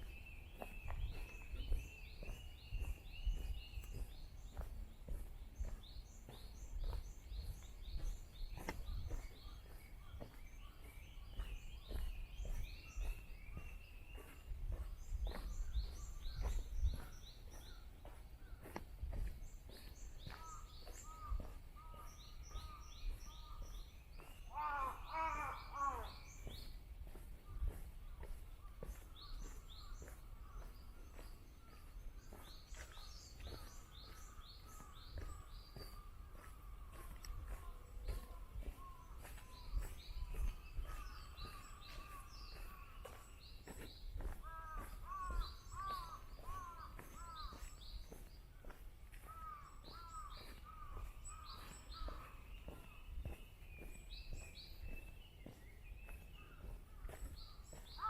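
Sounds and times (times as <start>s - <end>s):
soft footsteps: 0.0s - 24.5s, 26.4s - 58.0s
small birds chirping: 0.0s - 58.0s
crow cawing: 24.5s - 26.3s, 44.4s - 47.7s, 49.2s - 52.2s.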